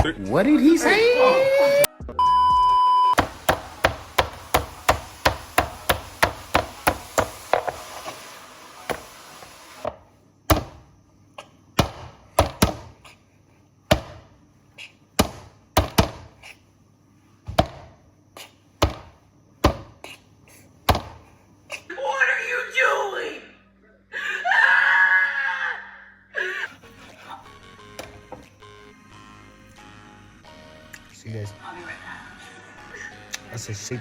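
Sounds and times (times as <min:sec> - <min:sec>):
meat beaten on chopping board: 0:03.2 - 0:07.0.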